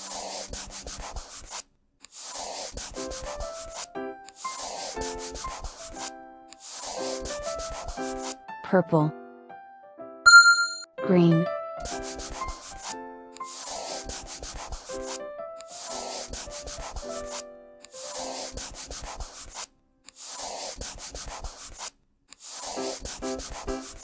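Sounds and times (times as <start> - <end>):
marker scratching on paper: 0.0 - 8.4, 11.8 - 24.0
light children's tune: 10.3 - 18.6.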